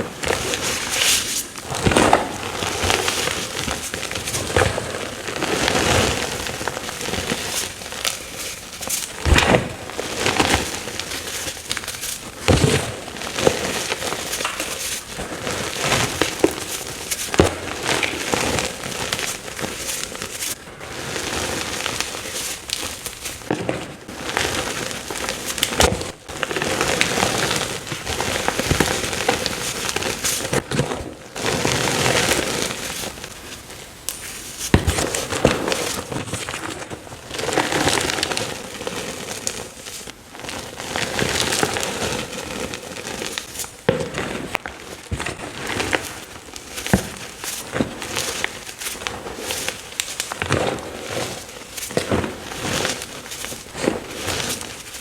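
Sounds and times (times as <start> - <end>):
chalk being crunched: 0.2 - 23.5, 31.4 - 55.0.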